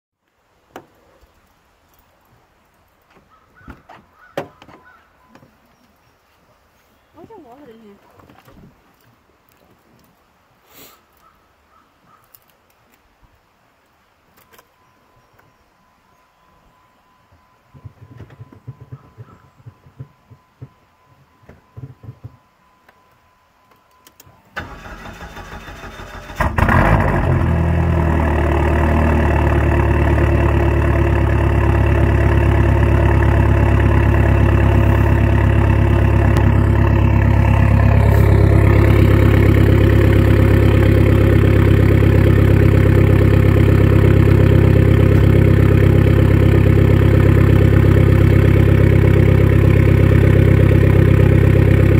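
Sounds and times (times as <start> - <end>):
starter motor cranking: 24.6 - 27.4
car engine idling loudly: 26.7 - 51.9.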